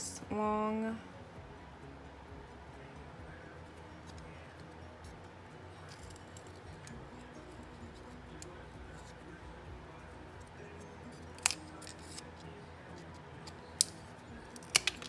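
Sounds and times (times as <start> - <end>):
snips cutting wooden stick: 13.4 - 15.0.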